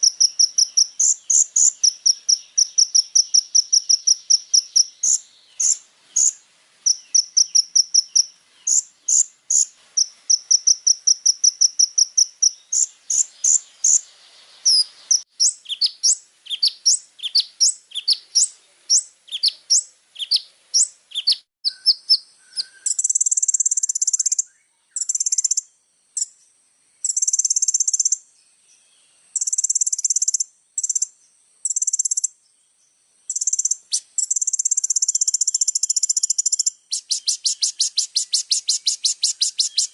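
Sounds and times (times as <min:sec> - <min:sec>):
sunbird song: 0:00.0 - 0:39.9.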